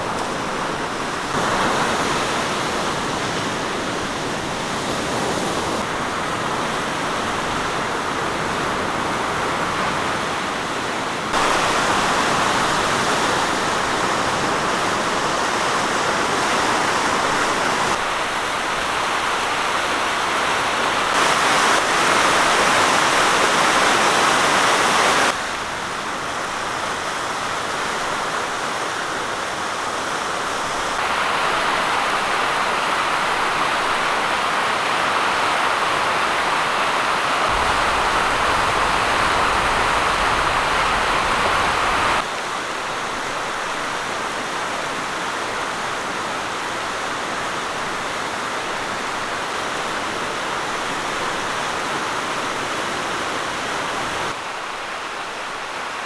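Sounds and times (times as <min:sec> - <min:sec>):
floodwater rushing: 0:00.0 - 0:56.0
deep rumble: 0:37.5 - 0:42.2.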